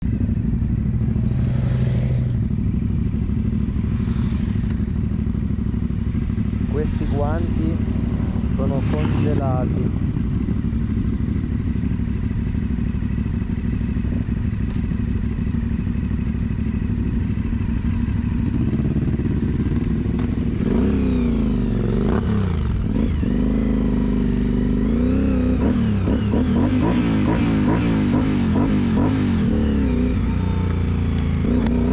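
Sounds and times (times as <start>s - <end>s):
motorcycle engine revving: 0.0s - 31.9s.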